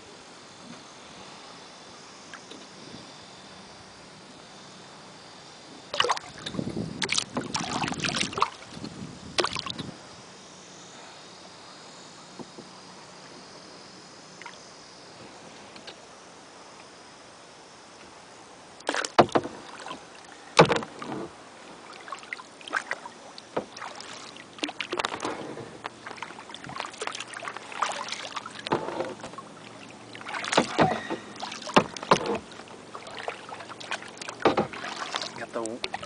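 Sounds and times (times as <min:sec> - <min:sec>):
water dripping and sloshing: 0:05.9 - 0:08.8, 0:21.8 - 0:36.0
paddle splashing in water: 0:05.9 - 0:09.8, 0:18.9 - 0:36.0.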